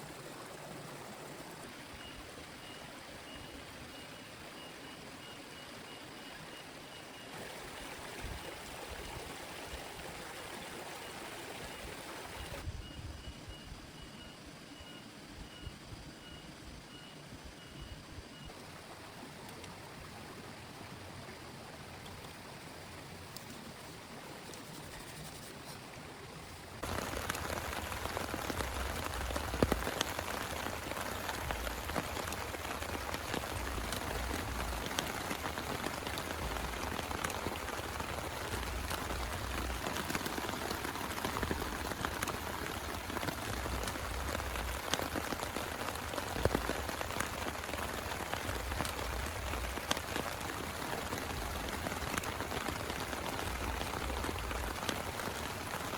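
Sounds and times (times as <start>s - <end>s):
heavy rain: 26.8s - 55.9s
sharp rain drop hits: 26.8s - 55.9s.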